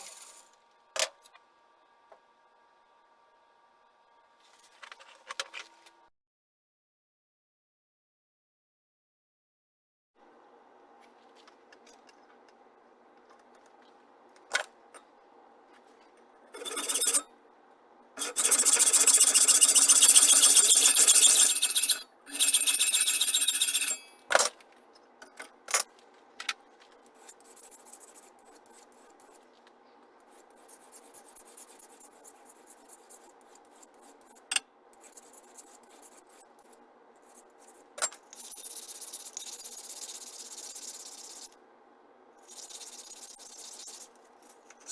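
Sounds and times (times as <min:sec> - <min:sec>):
faint steady hum: 0:00.0 - 0:06.1, 0:10.2 - 0:44.9
metal rasping: 0:16.5 - 0:17.3, 0:18.2 - 0:24.4.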